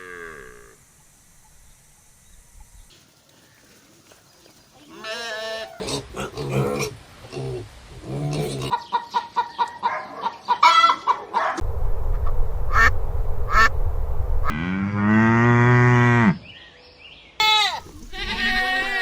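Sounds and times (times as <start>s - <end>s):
ducks quacking: 13.5s - 13.7s
cow mooing: 14.5s - 16.4s.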